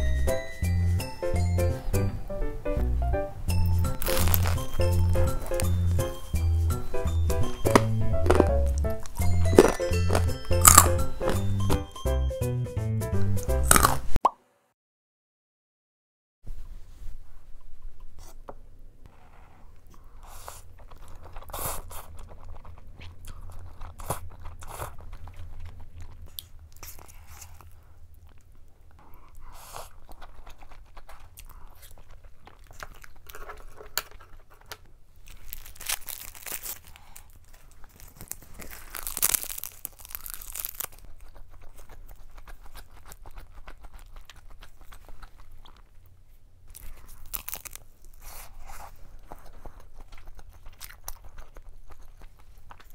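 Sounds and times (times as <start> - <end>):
person chewing noodles: 3.5 - 11.8, 13.5 - 14.2, 19.9 - 52.9
bite into seaweed-wrapped rice: 3.8 - 6.2, 8.2 - 11.4, 13.7 - 14.0, 20.0 - 46.1, 46.7 - 52.9
wet mouth clicks: 13.6 - 14.1.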